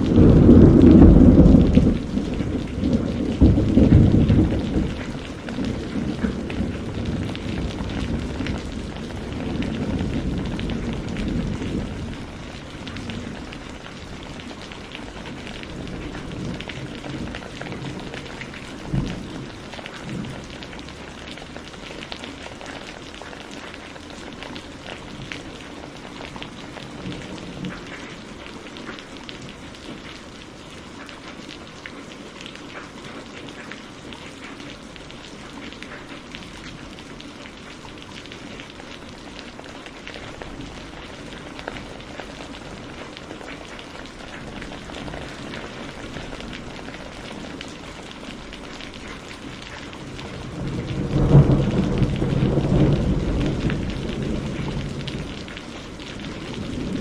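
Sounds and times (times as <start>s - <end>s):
low thunder rumble: 0.0s - 20.9s, 49.5s - 57.0s
rain pattering: 0.0s - 57.0s.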